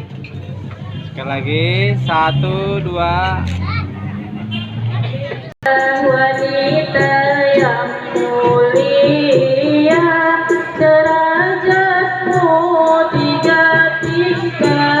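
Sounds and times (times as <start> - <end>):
person singing: 5.6 - 15.0.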